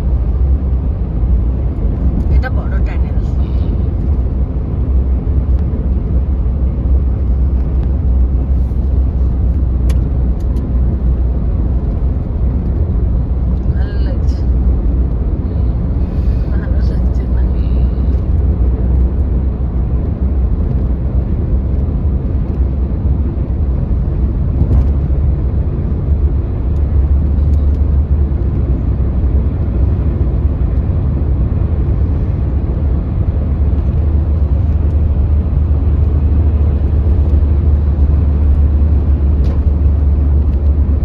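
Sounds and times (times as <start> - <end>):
moving vehicle rumble: 0.0 - 41.0.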